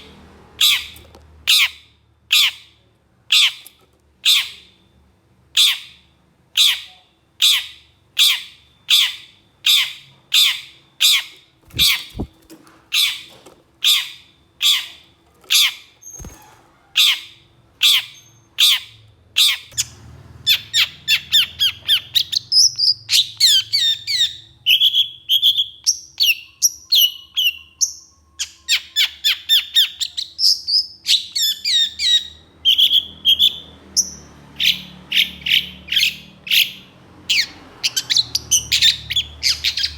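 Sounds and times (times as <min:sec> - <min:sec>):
bird chattering song: 0:06.6 - 0:19.9, 0:20.5 - 0:39.9
bird harsh rasping calls: 0:06.6 - 0:19.9.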